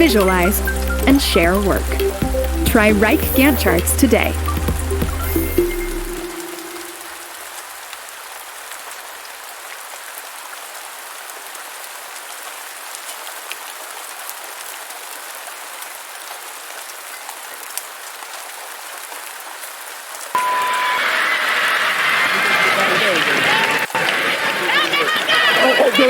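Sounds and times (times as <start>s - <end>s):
crowd noise: 0.0s - 7.4s, 20.4s - 26.0s
steady rain hiss: 0.0s - 26.0s
short beep: 20.4s - 21.4s.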